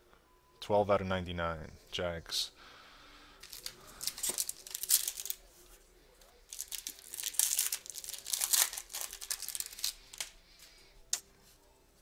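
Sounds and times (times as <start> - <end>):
card packaging crinkling and rustling: 3.4 - 10.7.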